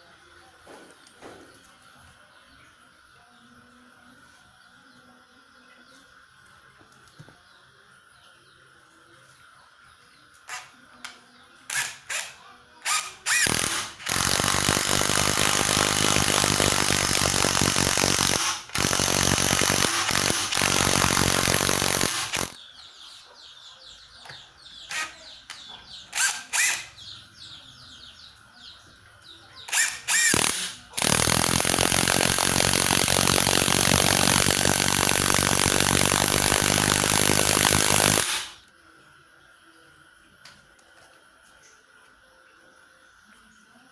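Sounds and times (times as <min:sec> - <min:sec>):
cordless impact driver running: 0:11.7 - 0:22.6, 0:26.1 - 0:26.9, 0:29.7 - 0:38.6.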